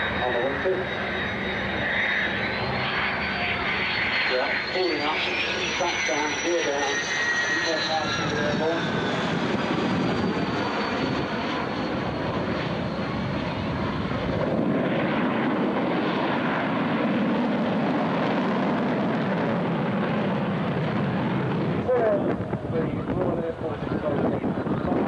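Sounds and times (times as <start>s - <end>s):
faint high whine: 0.0s - 13.6s
jet engine rush: 0.0s - 25.0s.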